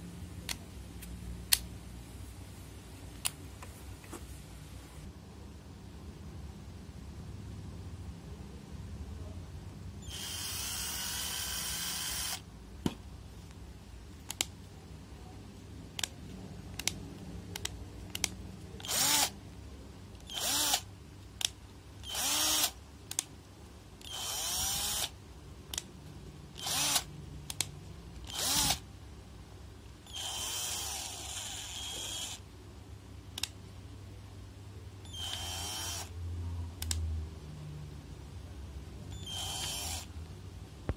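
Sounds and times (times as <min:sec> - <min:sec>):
cordless drill motor spinning: 0:10.0 - 0:12.4, 0:18.8 - 0:19.3, 0:20.2 - 0:20.8, 0:22.0 - 0:22.8, 0:24.0 - 0:25.2, 0:26.6 - 0:27.1, 0:28.2 - 0:28.8, 0:30.1 - 0:32.4, 0:35.1 - 0:36.1, 0:39.1 - 0:40.1
sharp clicks: 0:36.8 - 0:37.1.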